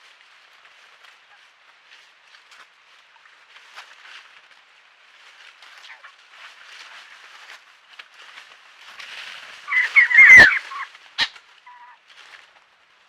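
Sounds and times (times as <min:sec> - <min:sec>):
faint rustling: 0:00.0 - 0:13.0
birds calling harshly: 0:09.7 - 0:12.0.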